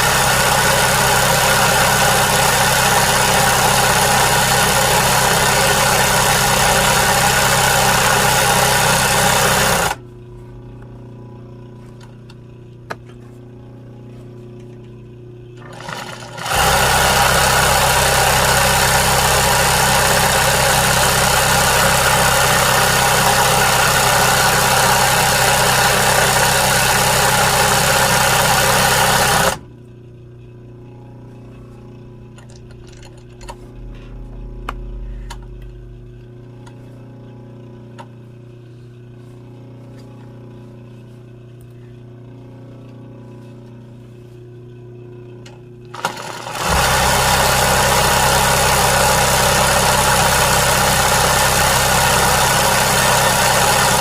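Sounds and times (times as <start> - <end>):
motor-driven machine running: 0.0 - 54.0.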